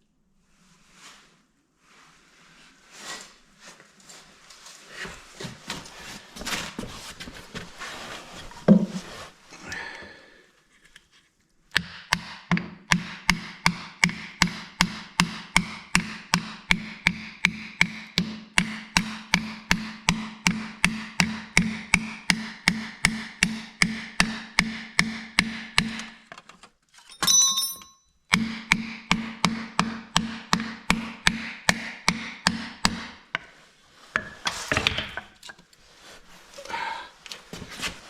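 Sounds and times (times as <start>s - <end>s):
hammer tapping a piston: 11.7s - 26.1s.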